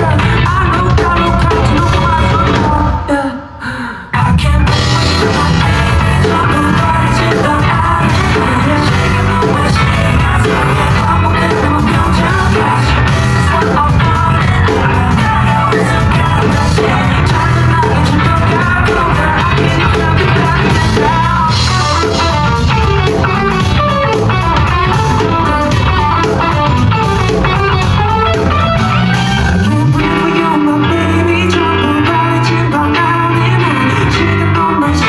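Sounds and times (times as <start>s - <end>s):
rock band playing live: 0.0s - 3.2s, 4.2s - 35.0s
bass note sliding upward: 19.5s - 31.3s.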